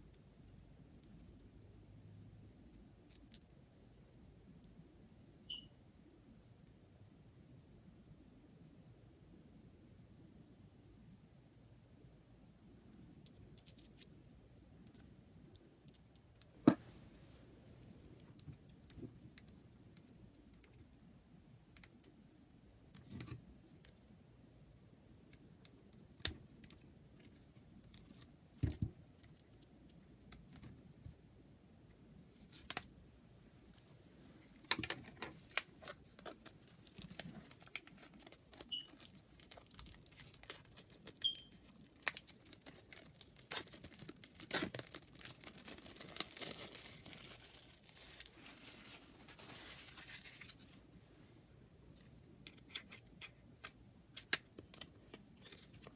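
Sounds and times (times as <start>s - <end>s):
packaging crinkling and tearing: 35.6s - 50.8s.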